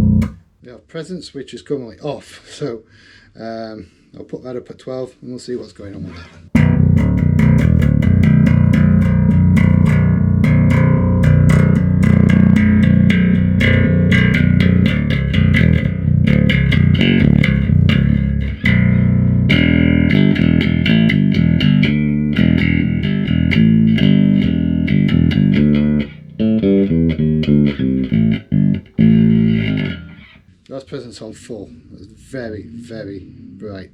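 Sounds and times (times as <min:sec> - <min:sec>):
bright bass guitar notes: 0:00.0 - 0:00.4, 0:06.6 - 0:30.4.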